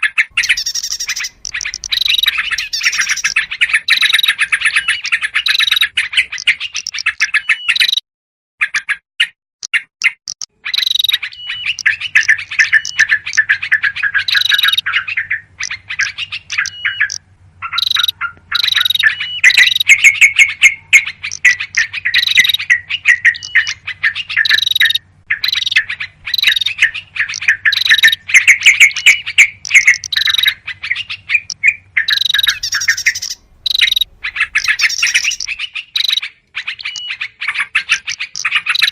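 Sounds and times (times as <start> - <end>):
small birds chirping and trilling: 0.0 - 8.0, 9.6 - 38.9.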